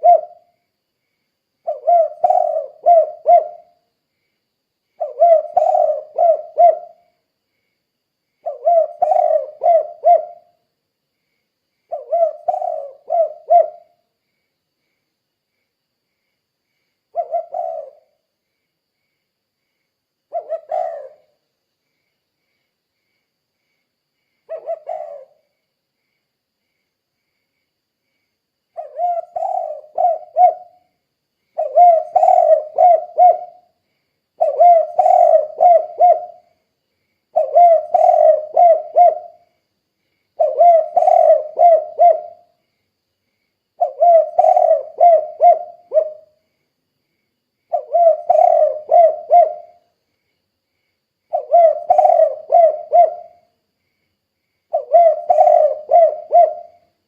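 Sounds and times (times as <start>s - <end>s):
dove cooing: 0.0s - 0.5s, 1.6s - 3.8s, 5.0s - 7.1s, 8.4s - 10.6s, 11.9s - 14.0s, 17.1s - 18.2s, 20.3s - 21.4s, 24.5s - 25.4s, 28.8s - 30.9s, 31.6s - 33.7s, 34.4s - 36.5s, 37.3s - 39.4s, 40.4s - 42.5s, 43.8s - 46.4s, 47.7s - 49.8s, 51.3s - 53.5s, 54.7s - 56.9s.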